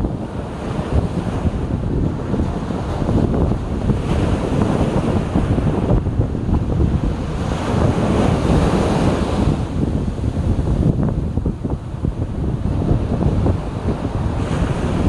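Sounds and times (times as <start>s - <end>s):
sea waves washing on shore: 0.0s - 15.0s
wind buffeting microphone: 0.0s - 15.0s.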